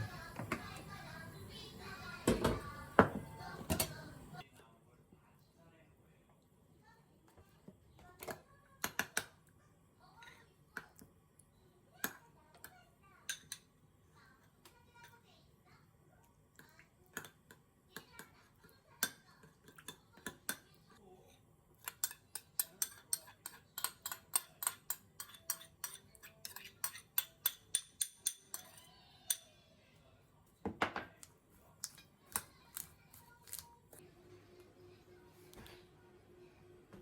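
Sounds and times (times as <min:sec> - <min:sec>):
utensils and dishes clattering: 0:02.2 - 0:04.4, 0:21.9 - 0:29.4.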